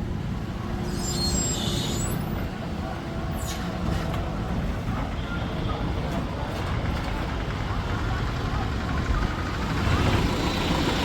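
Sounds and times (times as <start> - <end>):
brief high squeaks: 0.8 - 2.3, 3.3 - 3.9.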